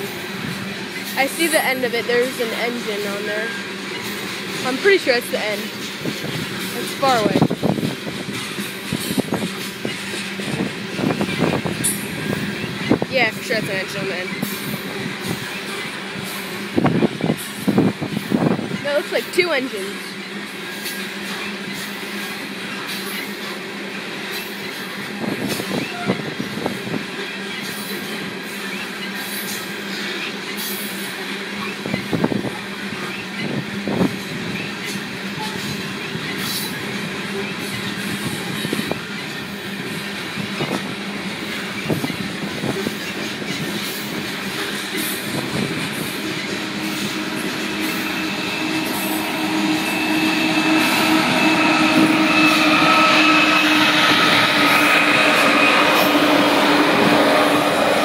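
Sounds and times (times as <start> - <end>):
train cars rolling on rails: 0.0 - 58.0
train wheel clanks: 0.0 - 58.0
thin whine: 44.5 - 58.0
low hum: 45.5 - 58.0.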